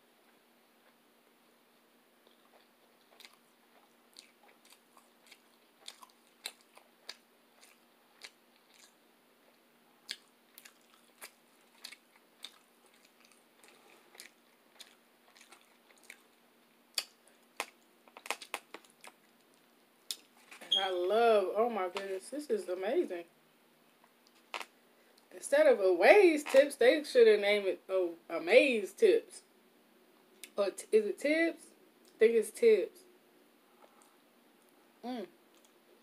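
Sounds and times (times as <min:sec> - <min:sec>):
person chewing food: 0:02.2 - 0:20.6.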